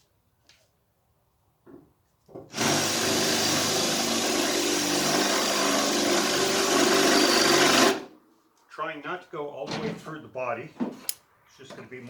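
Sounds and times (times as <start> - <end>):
electric drill boring sheet steel: 2.5 - 8.1.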